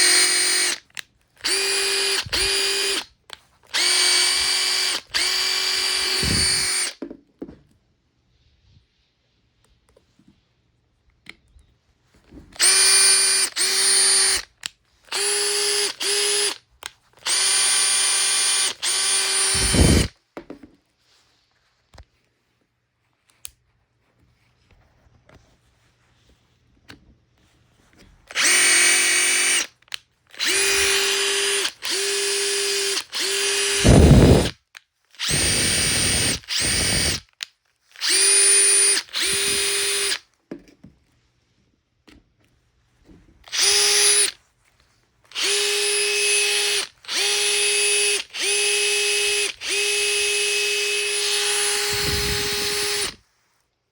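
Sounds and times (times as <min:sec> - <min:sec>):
impact driver motor whine: 0:00.0 - 0:00.8, 0:01.4 - 0:03.0, 0:03.8 - 0:07.0, 0:12.6 - 0:14.4, 0:17.3 - 0:20.1, 0:28.3 - 0:29.6, 0:30.4 - 0:34.5, 0:35.2 - 0:37.2, 0:38.0 - 0:40.2, 0:43.5 - 0:44.3, 0:45.3 - 0:53.2.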